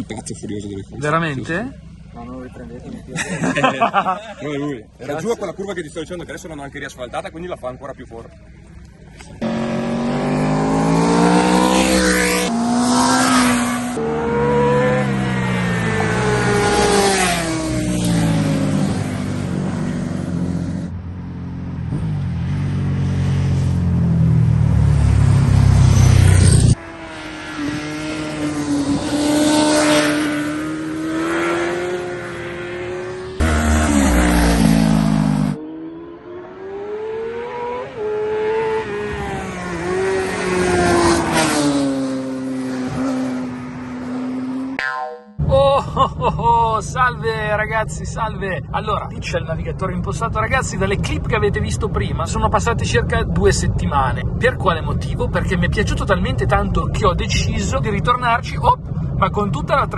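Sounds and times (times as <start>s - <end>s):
motorcycles revving and passing: 8.4s - 45.7s.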